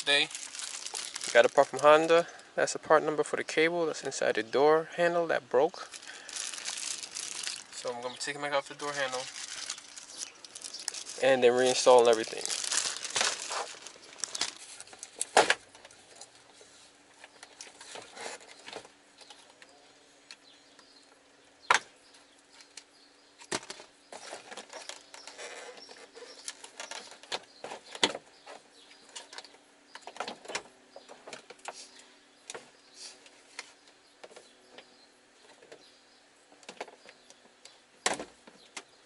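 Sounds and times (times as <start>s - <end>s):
faint steady hum: 0.0s - 27.4s.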